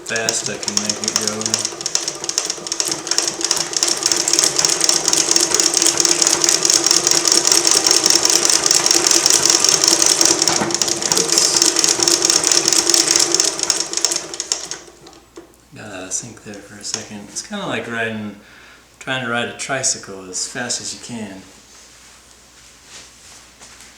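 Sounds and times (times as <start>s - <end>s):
sewing machine clattering: 0.0s - 15.2s.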